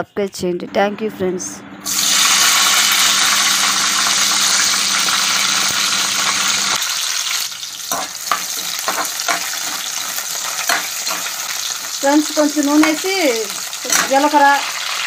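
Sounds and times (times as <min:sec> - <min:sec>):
chillies sizzling in hot oil: 0:01.8 - 0:15.0
metal spoon scraping pan: 0:07.9 - 0:11.5.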